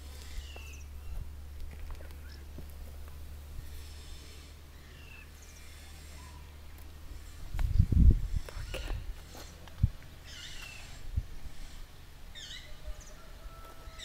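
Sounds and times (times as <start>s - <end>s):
faint bird chirps: 12.3s - 14.0s.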